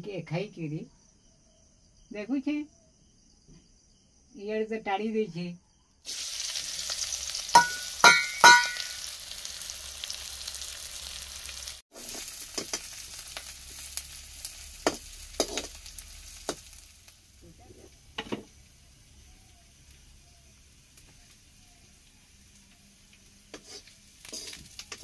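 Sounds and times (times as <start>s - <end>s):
onions sizzling in oil: 6.0s - 25.0s
ringing metal clang: 7.6s - 8.9s
metal spoon scraping pan: 23.5s - 25.0s.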